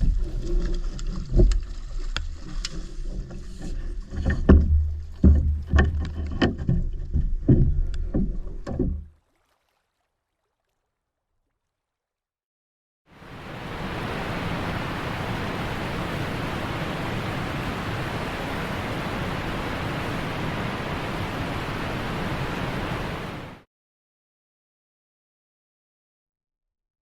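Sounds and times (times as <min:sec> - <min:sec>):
steady rushing noise: 0:13.2 - 0:23.6.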